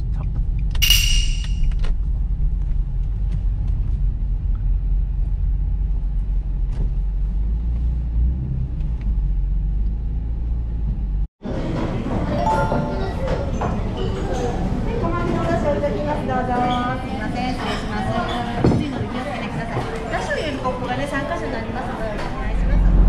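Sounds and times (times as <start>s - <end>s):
car engine low rumble: 0.0s - 0.8s, 1.6s - 11.3s
short bright chime: 0.8s - 1.7s, 12.4s - 13.7s.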